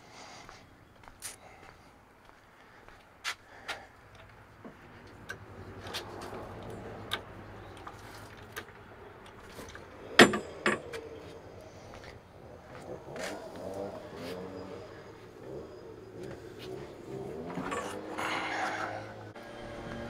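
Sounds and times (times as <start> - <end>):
tools clicking and knocking: 5.1 - 11.2.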